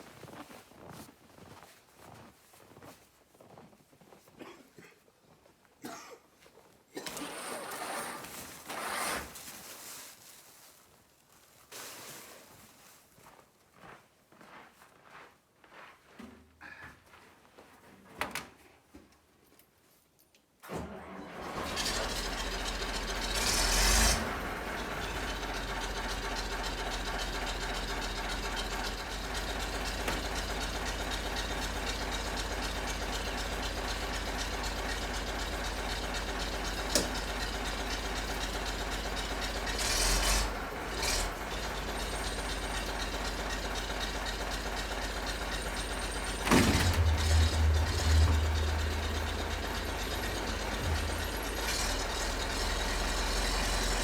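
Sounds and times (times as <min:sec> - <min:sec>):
tractor engine idling: 0:21.6 - 0:54.0.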